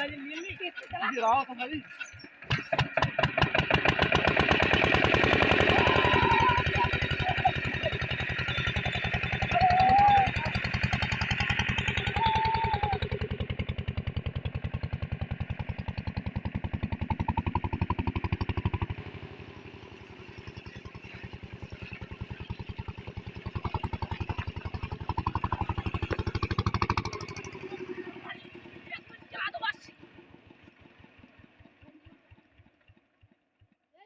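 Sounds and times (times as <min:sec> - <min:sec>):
engine running: 0:00.0 - 0:33.8.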